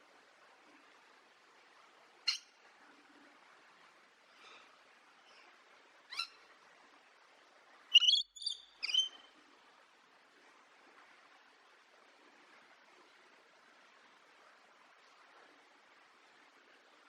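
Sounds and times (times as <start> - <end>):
faint steady hiss: 0.0 - 17.0
parrot calls: 7.9 - 9.2.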